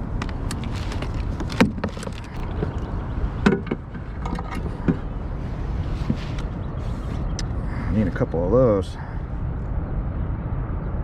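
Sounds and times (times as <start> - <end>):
steady low rumble: 0.0 - 11.0
sharp knocks and clicks: 0.2 - 5.1.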